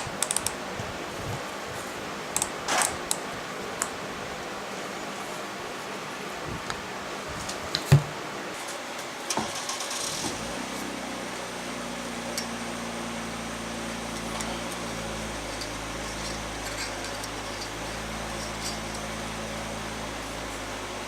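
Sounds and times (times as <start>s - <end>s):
low motor hum: 10.2s - 21.0s.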